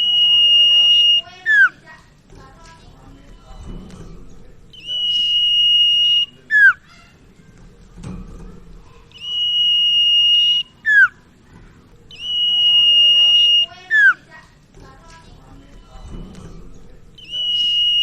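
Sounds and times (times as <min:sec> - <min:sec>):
bird whistling song: 0:00.0 - 0:01.8, 0:04.7 - 0:07.0, 0:09.1 - 0:11.2, 0:12.1 - 0:14.3, 0:17.2 - 0:18.0.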